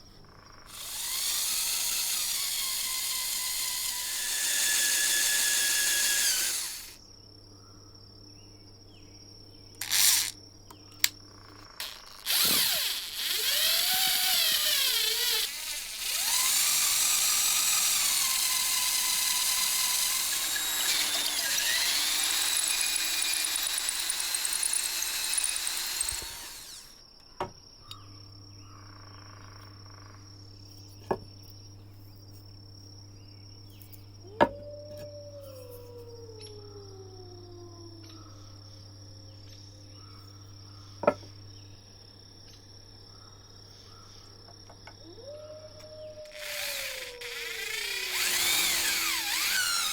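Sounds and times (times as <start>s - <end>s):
electric drill running: 0.7s - 7.0s, 9.8s - 10.4s, 11.8s - 27.0s, 46.3s - 49.9s.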